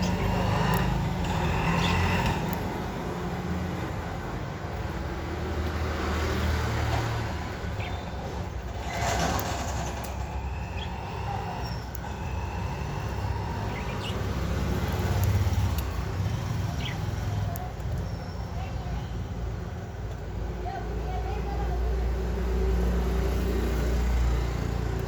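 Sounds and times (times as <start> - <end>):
budgerigars chirping: 0.0 - 2.6, 7.7 - 8.3, 10.1 - 15.6.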